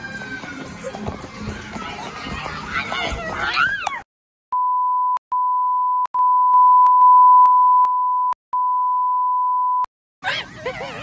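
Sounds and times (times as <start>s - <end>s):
censor beep tone: 4.5s - 9.9s.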